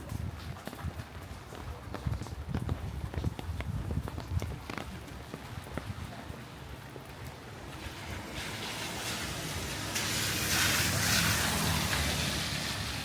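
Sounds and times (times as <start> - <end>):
tyre hiss on wet road: 7.6 - 13.0.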